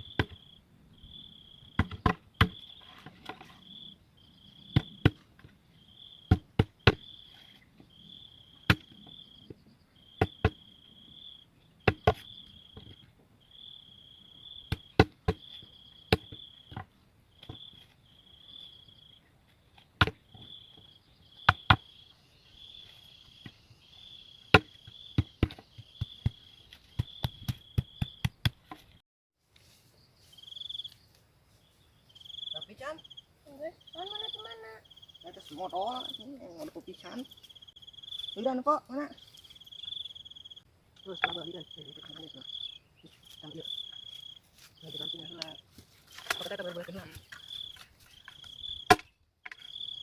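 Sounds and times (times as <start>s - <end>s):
cricket chirping trills: 0.0s - 19.3s, 20.2s - 28.4s, 29.6s - 50.0s
sharp chopping knocks: 48.9s - 49.1s.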